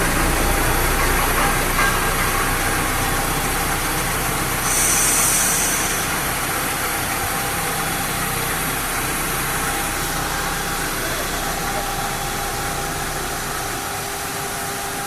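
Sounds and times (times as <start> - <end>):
brief hiss: 4.6 - 6.3.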